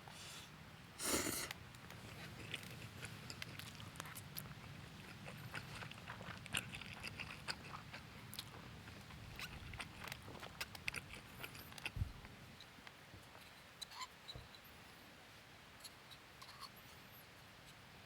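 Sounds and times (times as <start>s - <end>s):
person chewing: 1.0s - 12.0s.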